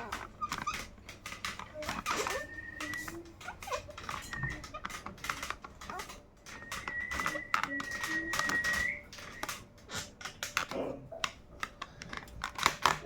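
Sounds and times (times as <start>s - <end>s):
parrot clicking and tapping: 0.0s - 13.0s
parrot high whistle: 6.5s - 9.6s.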